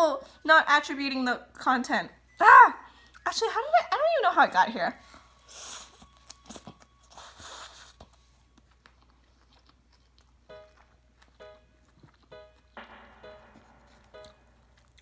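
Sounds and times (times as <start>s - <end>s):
soft background music: 0.0s - 9.1s, 10.3s - 15.0s
chewing and crunching food: 5.0s - 12.8s.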